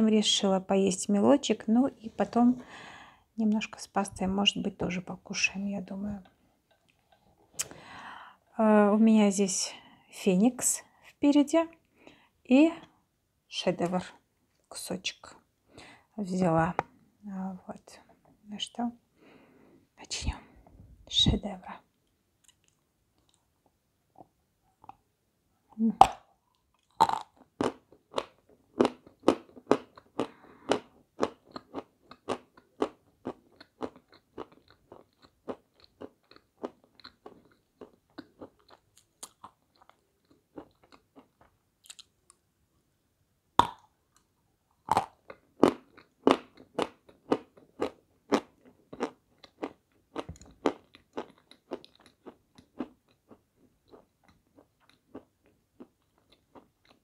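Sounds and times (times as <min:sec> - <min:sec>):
crunching and chewing candy: 0:26.0 - 0:42.4, 0:43.6 - 0:57.0.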